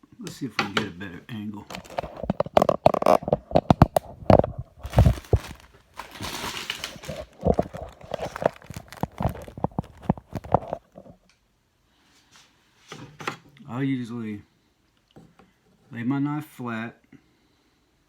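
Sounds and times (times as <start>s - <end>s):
rubbing or rustling: 1.6s - 11.0s.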